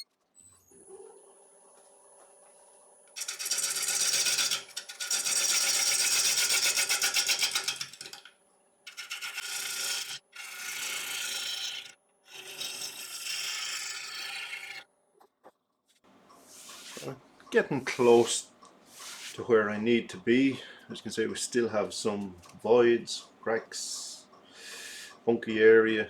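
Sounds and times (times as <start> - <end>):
lathe gouge scraping wood: 3.2 - 8.2, 8.9 - 14.8.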